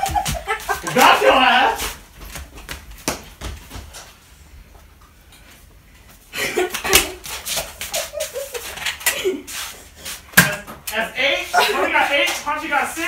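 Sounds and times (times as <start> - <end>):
footsteps on tile floor: 0.0 - 6.2, 6.8 - 10.9.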